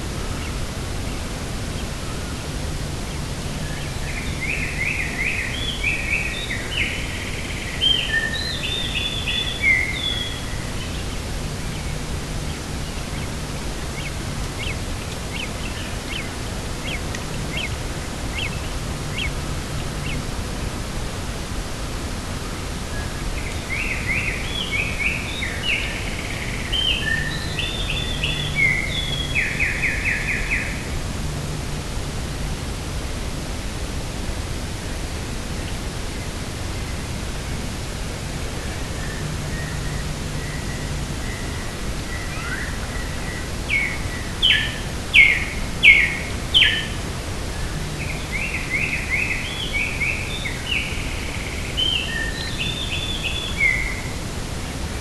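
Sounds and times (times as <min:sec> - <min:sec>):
songbird singing: 0:00.0 - 0:32.6, 0:34.8 - 0:55.0
wind noise: 0:00.0 - 0:55.0
thin ticking bird calls: 0:03.1 - 0:20.8.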